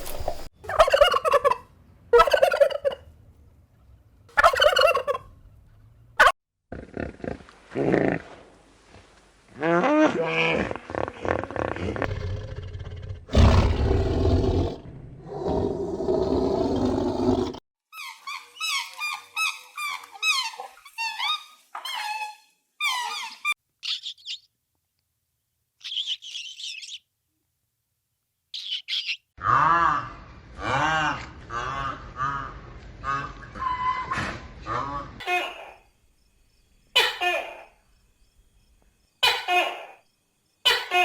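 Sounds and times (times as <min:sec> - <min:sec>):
high bird chirps: 0:23.8 - 0:24.5.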